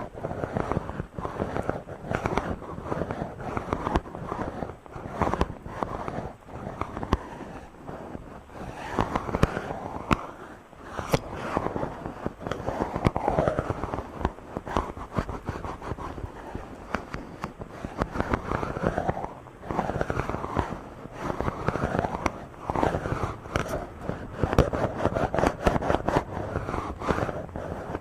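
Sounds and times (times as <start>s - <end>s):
fingers rubbing on microphone: 0.0s - 28.0s.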